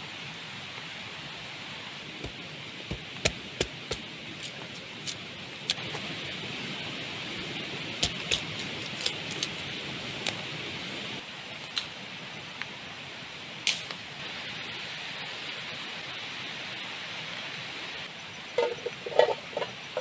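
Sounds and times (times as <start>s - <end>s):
rain hiss: 0.0s - 20.0s.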